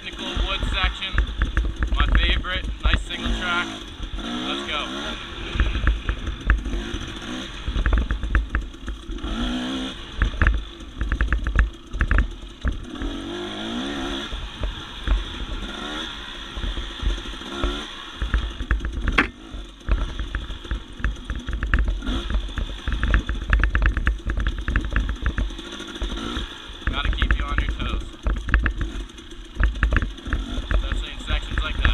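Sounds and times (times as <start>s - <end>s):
bike clattering over trail: 0.0s - 31.9s
dirt bike engine revving: 0.0s - 31.9s
sharp knock: 19.1s - 19.4s.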